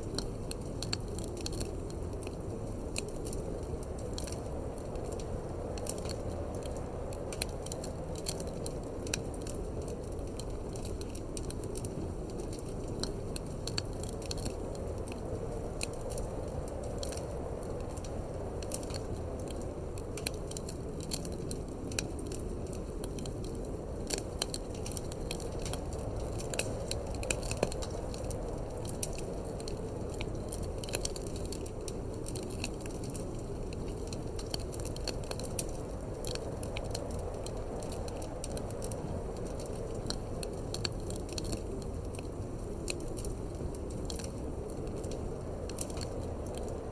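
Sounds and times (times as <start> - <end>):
low rumble of wind: 0.0 - 46.9
wood fire crackling and popping: 0.0 - 46.9.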